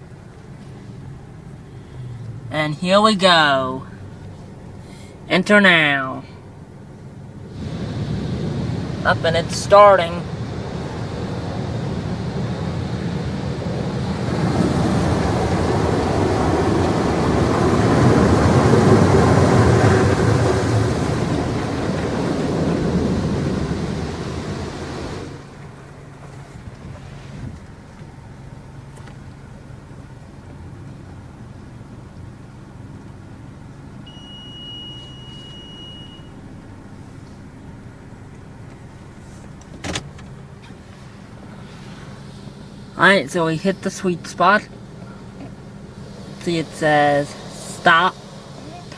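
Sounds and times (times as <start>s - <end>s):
car wash spraying water: 0.0s - 48.9s
high electronic beep: 34.1s - 36.4s.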